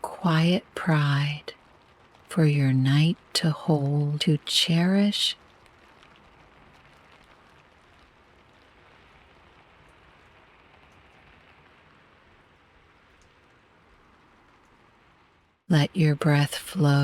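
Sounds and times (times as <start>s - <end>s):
soft steady rain: 0.0s - 17.0s.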